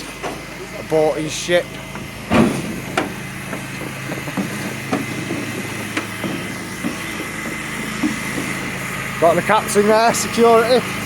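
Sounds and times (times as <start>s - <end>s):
low machine hum: 0.0s - 11.0s
footsteps going down stairs: 2.7s - 9.0s.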